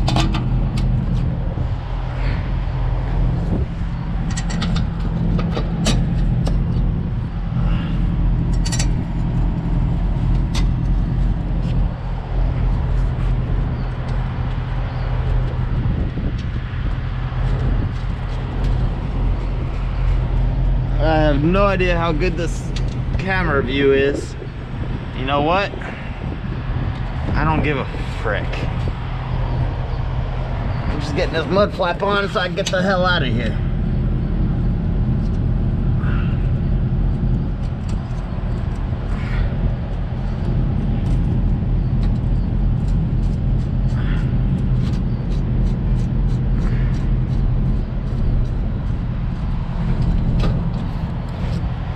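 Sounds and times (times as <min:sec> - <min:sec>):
diesel truck engine idling: 0:00.0 - 0:51.9.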